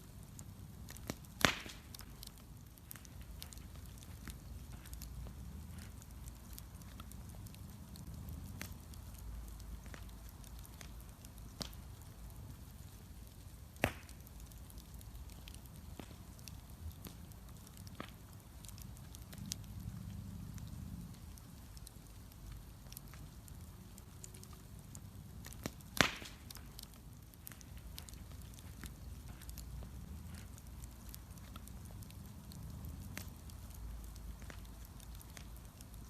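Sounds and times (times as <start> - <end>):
low steady rumble: 0.0 - 13.8, 14.4 - 36.0
bonfire crackling: 0.0 - 36.0
sharp loud fire pops: 1.4 - 1.8, 25.9 - 26.4.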